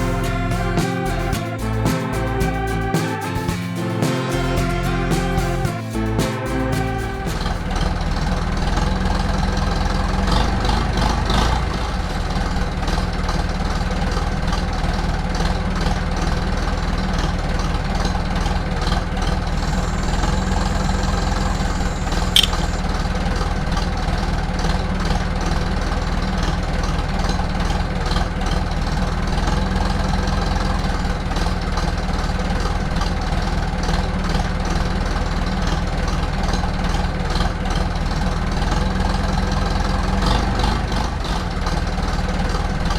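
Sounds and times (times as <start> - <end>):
engine idling: 0.0 - 42.9
short sharp click: 22.4 - 22.7.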